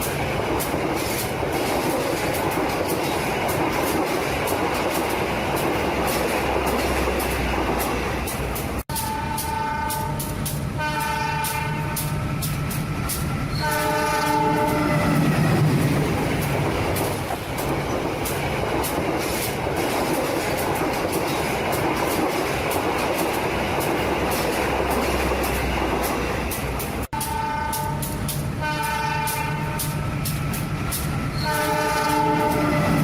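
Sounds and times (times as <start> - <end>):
train rumbling: 0.0 - 33.0
train horn: 8.9 - 12.4, 13.5 - 15.4, 27.1 - 30.1, 31.3 - 33.0.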